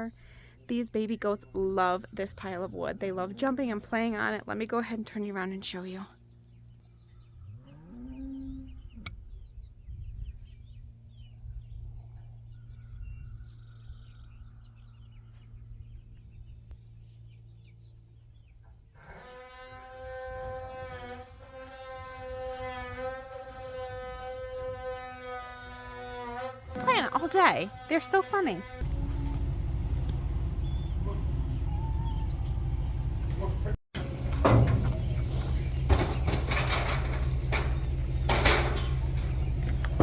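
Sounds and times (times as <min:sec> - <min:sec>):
low rumble: 0:28.6 - 0:40.0.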